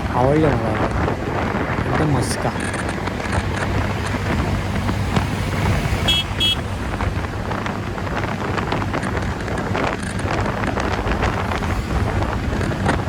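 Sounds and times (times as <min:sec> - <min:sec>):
wind rushing over microphone: 0:00.0 - 0:13.0
scooter horn beeps: 0:06.0 - 0:06.8.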